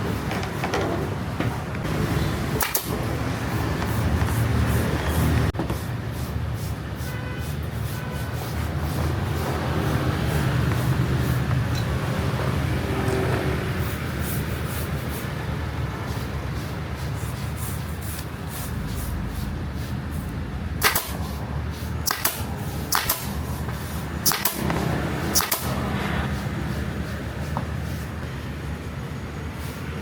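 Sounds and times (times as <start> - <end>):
sharp clicks: 22.1 - 23.4.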